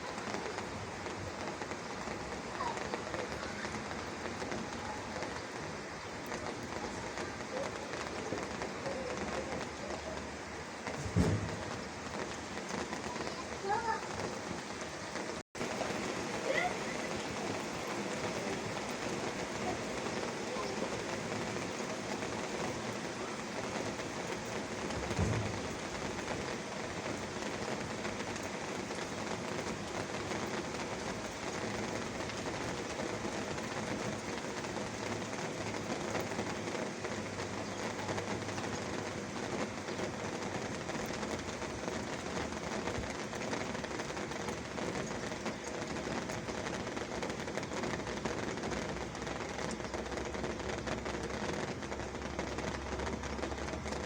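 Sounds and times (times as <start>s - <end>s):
rain pattering: 0.0s - 54.0s
low thump: 11.0s - 11.8s, 25.0s - 25.7s.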